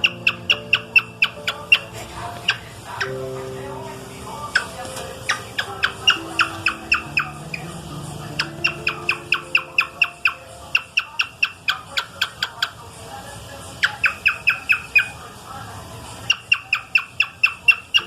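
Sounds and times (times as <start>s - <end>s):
cockatiel chirping: 0.0s - 3.2s, 4.4s - 12.8s, 13.8s - 15.2s, 16.3s - 18.0s.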